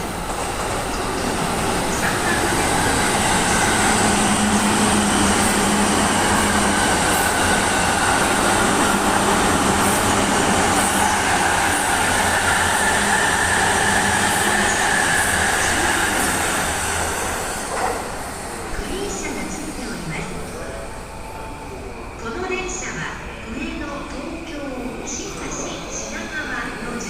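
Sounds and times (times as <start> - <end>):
train wheels rolling on rail: 0.0 - 20.8.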